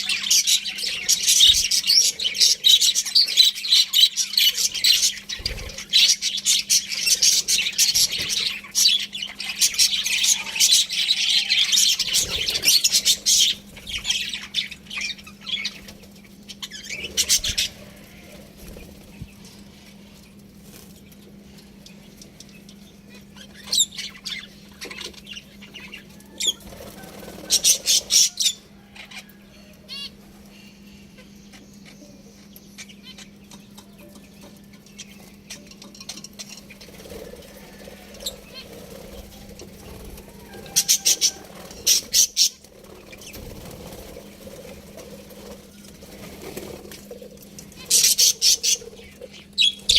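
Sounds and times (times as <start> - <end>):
budgerigars chirping: 0.0 - 17.9, 35.0 - 43.8, 47.7 - 49.9
low steady hum: 0.0 - 49.9.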